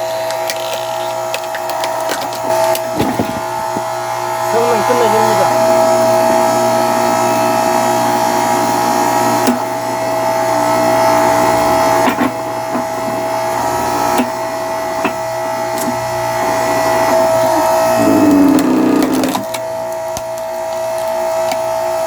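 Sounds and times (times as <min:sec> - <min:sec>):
log splitter motor whine: 0:00.0 - 0:22.0
wood cracking: 0:00.2 - 0:03.9, 0:18.0 - 0:21.6.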